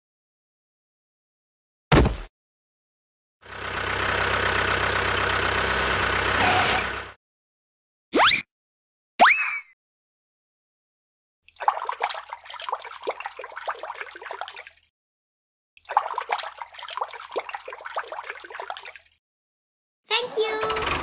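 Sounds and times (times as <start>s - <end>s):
crackly trickling water-like sound: 11.5s - 14.9s, 15.8s - 19.2s.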